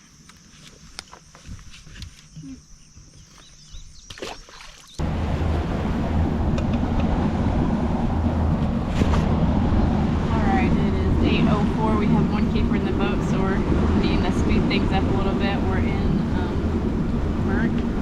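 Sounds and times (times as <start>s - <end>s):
wind and water rush: 4.6s - 18.0s
outboard motor running: 5.0s - 18.0s.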